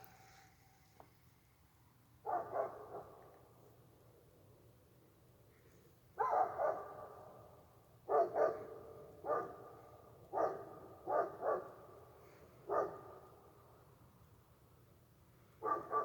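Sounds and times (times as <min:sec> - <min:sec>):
dogs barking: 0:08.1 - 0:09.6, 0:10.4 - 0:11.7.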